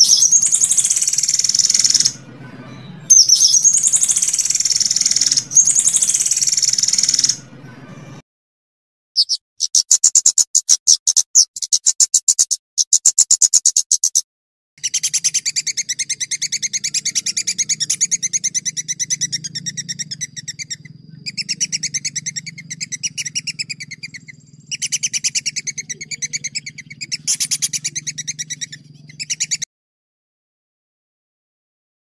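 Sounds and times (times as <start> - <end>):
songbird trilling: 0.0 - 8.0, 9.2 - 14.2, 14.8 - 29.6
faint low hum: 0.2 - 8.2, 15.0 - 29.6.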